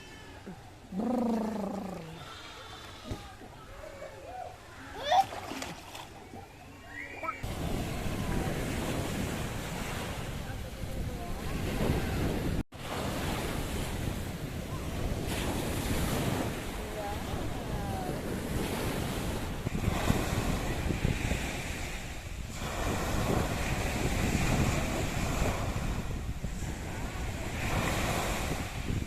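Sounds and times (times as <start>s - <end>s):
sea waves washing on shore: 0.0s - 29.0s
wind buffeting microphone: 7.4s - 29.0s.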